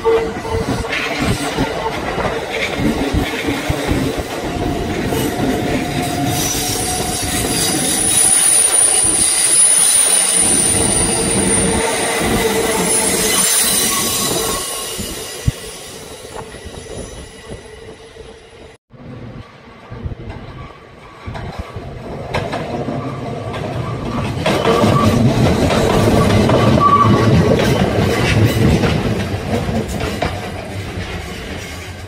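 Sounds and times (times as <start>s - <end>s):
high thin train whine: 0.0s - 22.2s
train wheels clacking over rail joints: 20.2s - 32.0s.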